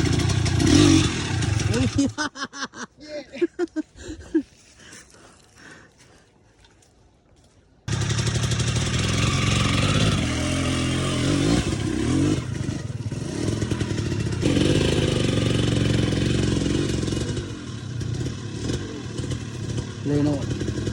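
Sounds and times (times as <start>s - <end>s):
dirt bike engine revving: 0.0s - 2.1s, 7.9s - 20.9s.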